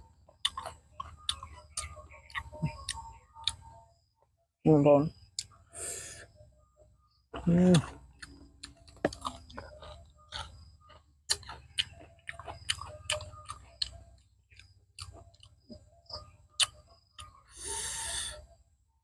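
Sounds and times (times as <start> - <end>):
wet chewing and lip smacks: 0.3 - 3.8, 7.8 - 17.5.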